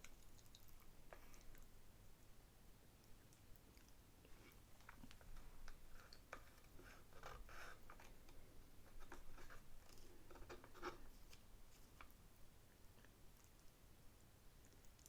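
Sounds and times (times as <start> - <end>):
close-miked chewing: 0.0 - 1.7, 14.6 - 15.0.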